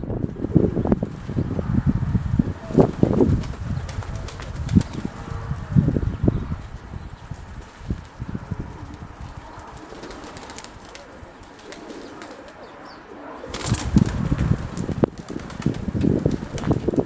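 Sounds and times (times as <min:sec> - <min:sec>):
wind buffeting microphone: 0:00.0 - 0:17.0
pigeons cooing: 0:08.7 - 0:16.7.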